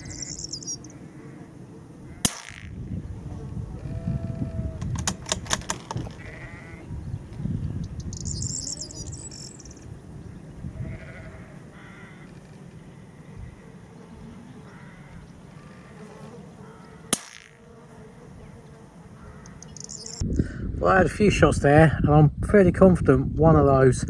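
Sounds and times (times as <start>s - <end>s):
short high chirping: 0.0s - 0.9s, 7.8s - 9.9s, 19.5s - 20.2s
steady low rumble: 0.8s - 5.2s
sheep bleating: 3.7s - 4.8s, 6.1s - 7.0s, 10.8s - 12.4s
sharp clicks: 4.8s - 6.2s.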